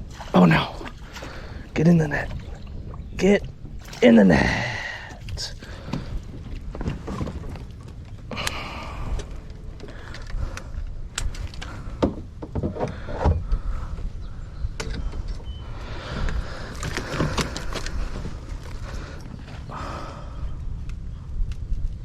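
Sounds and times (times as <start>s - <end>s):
low rumble: 0.0s - 22.0s
landing net and fish knocking: 16.7s - 18.3s.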